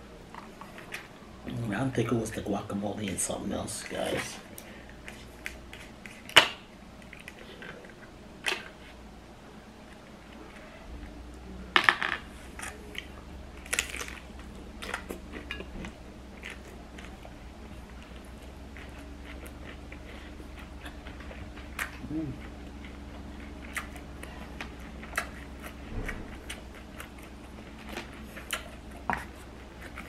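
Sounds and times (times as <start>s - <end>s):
quiet chewing: 7.0s - 9.1s, 12.5s - 30.0s
crunching tortilla chip: 13.6s - 15.6s.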